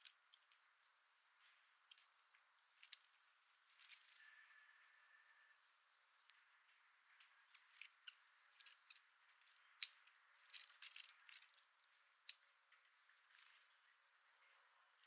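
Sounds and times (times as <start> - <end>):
birds pecking seed: 7.4 - 15.0.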